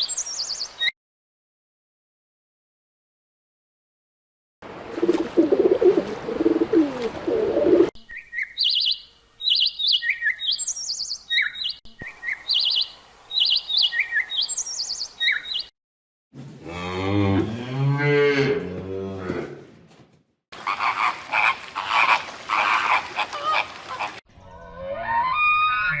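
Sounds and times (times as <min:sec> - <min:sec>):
small bird chirping: 0:08.0 - 0:15.7
low wavering animal call: 0:24.4 - 0:26.0.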